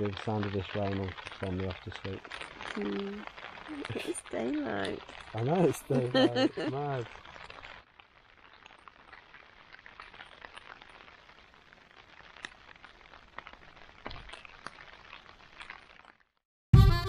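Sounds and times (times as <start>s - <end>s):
rain falling on a tent: 0.0s - 16.4s.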